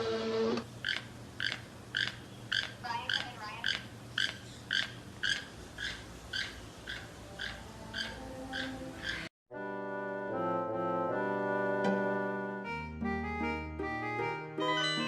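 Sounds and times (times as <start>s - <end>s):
animal chirping calls: 0.8s - 9.3s
wavering pitched call: 0.8s - 9.3s.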